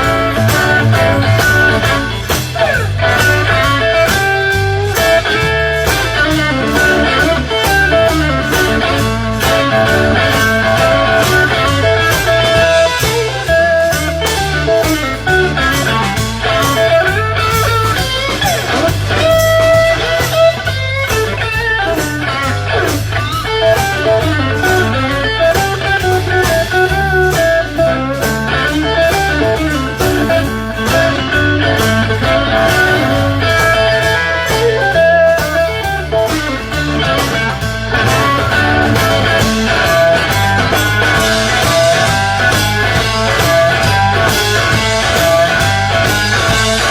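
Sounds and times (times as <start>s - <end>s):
bass: 0.0s - 46.9s
drums: 0.0s - 46.9s
electric guitar melody: 0.0s - 46.9s.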